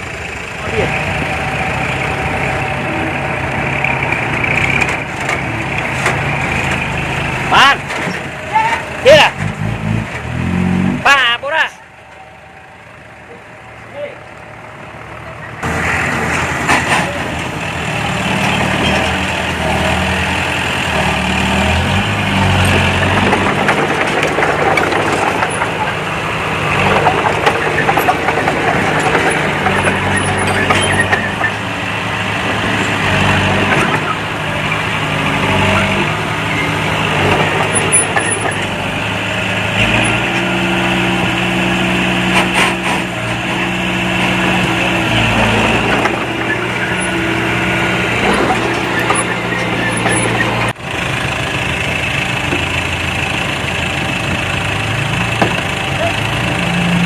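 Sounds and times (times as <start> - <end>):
diesel machinery engine: 0.0 - 57.0
clanking and rattling: 3.6 - 10.4, 15.6 - 50.8.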